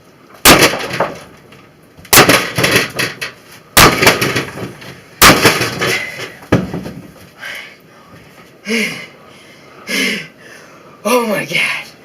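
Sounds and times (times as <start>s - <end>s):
clatter of loose pieces: 0.3s - 7.3s
sledgehammer smashing metal casing: 0.4s - 1.3s, 2.1s - 6.8s.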